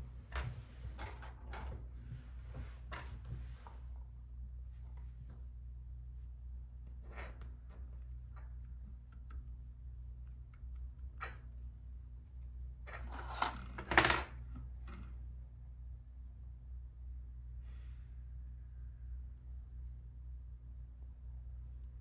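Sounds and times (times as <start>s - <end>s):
light clicks of small parts: 7.2s - 12.5s, 21.6s - 22.0s.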